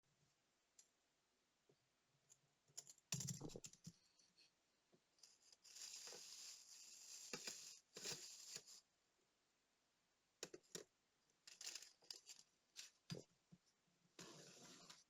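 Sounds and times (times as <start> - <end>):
small clicks and taps: 2.3 - 4.0, 10.4 - 10.9.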